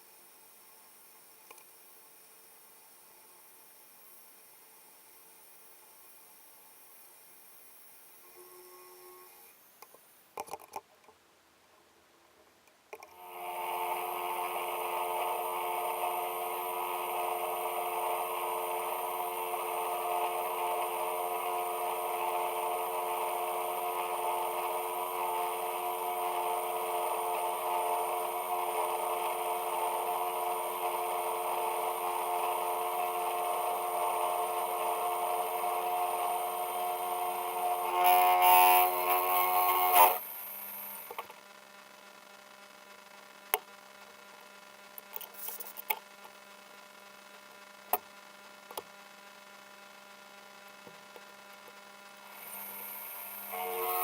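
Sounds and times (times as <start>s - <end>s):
machine tool whining: 13.2s - 41.3s, 52.3s - 54.0s.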